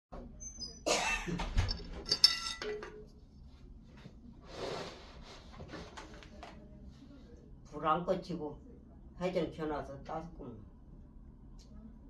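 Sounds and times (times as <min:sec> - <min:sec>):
metal clanking and clinking: 0:01.5 - 0:03.0.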